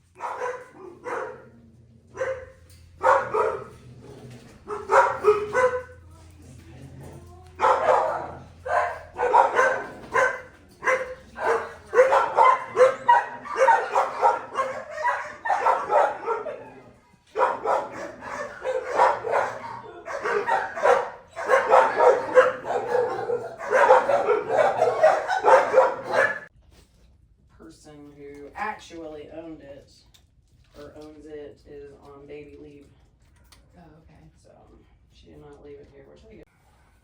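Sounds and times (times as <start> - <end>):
dogs barking: 0.0 - 26.5.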